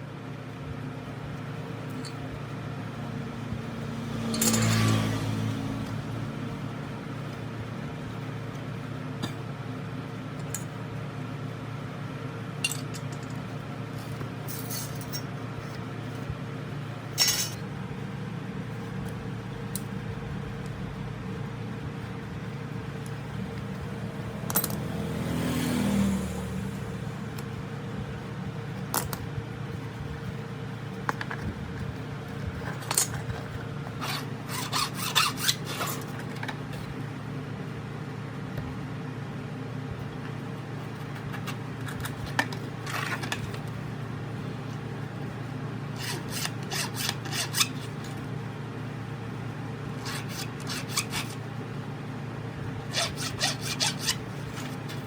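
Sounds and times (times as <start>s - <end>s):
steady low hum: 0.0s - 55.0s
hand tool scraping: 33.9s - 36.4s, 46.0s - 48.2s, 50.0s - 51.4s, 52.9s - 55.0s.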